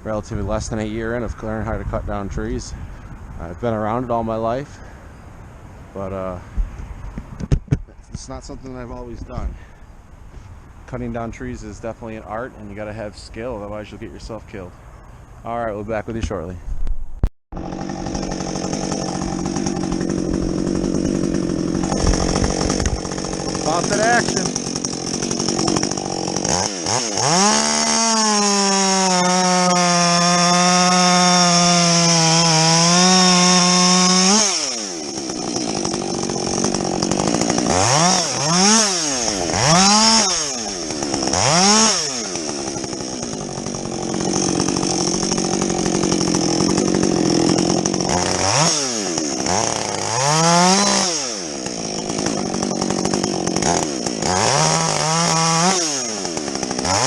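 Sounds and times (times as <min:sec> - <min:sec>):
chainsaw revving: 0:17.6 - 0:57.0.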